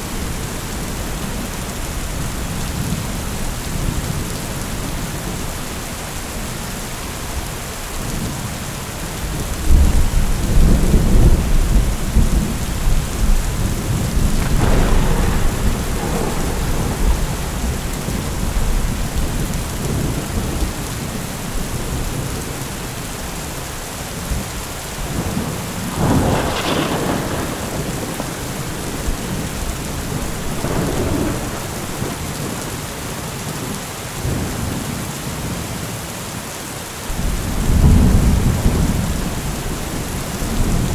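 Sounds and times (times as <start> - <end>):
heavy rain falling: 0.0 - 40.9
thunder rumbling: 9.2 - 23.4, 24.2 - 33.6, 37.1 - 40.9.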